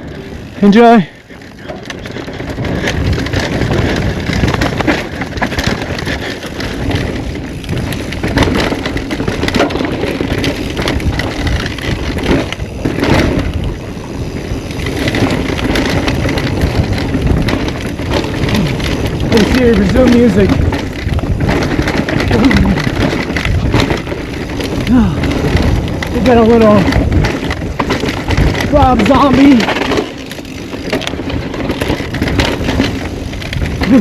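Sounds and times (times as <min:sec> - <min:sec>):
bike clattering over bumps: 0:00.0 - 0:34.0
bike tyres rushing over rock: 0:00.0 - 0:34.0.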